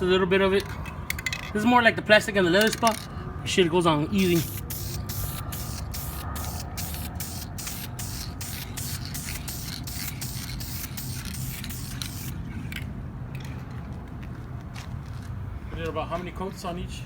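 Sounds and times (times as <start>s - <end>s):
aerosol spray can hissing: 4.2s - 12.3s.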